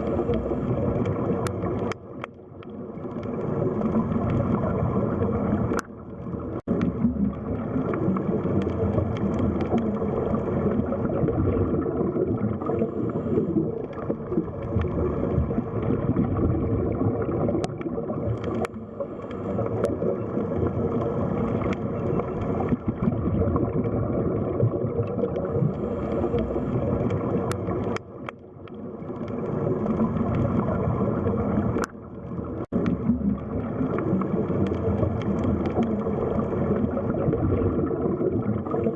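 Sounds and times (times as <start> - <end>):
deep underwater noise: 0.0 - 38.9.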